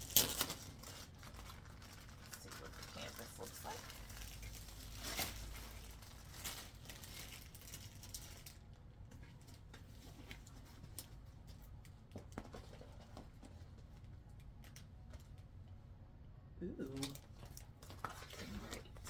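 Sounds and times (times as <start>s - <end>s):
canvas rustling and crinkling: 0.1s - 8.6s.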